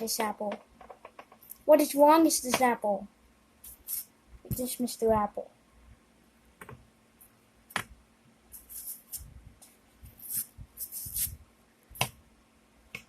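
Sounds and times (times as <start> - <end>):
knife crunching through apple: 10.1 - 11.4.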